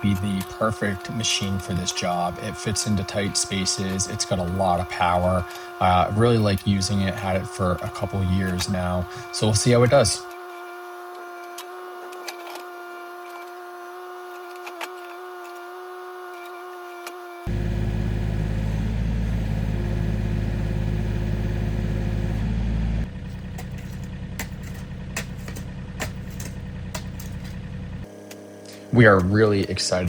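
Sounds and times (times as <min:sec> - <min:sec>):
diesel engine running: 0:17.5 - 0:28.8.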